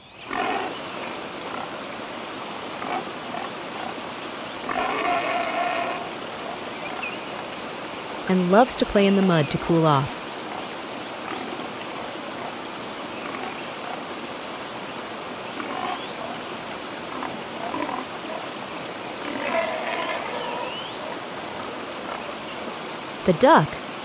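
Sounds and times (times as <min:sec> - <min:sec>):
steady outdoor hiss: 0:00.0 - 0:24.0
pigs grunting and squealing: 0:04.7 - 0:06.1, 0:17.1 - 0:18.4, 0:19.2 - 0:20.8.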